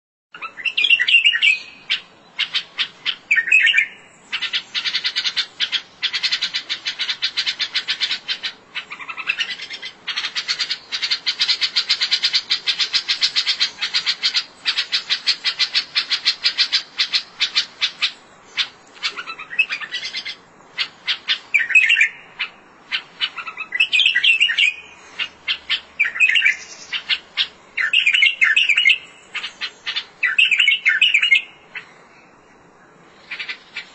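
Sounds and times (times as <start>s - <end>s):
bird chirping and warbling: 0.3s - 32.3s, 33.0s - 33.9s.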